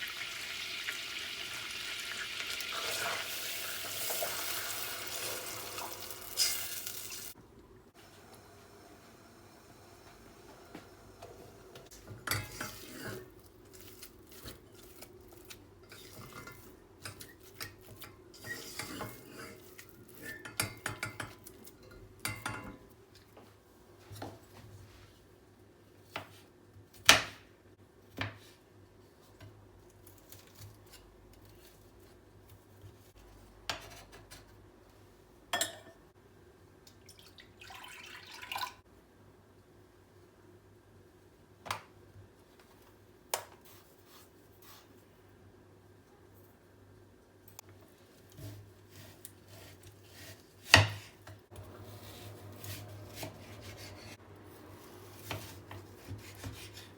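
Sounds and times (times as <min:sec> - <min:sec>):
cutlery clinking against dishes: 0:35.6 - 0:36.0.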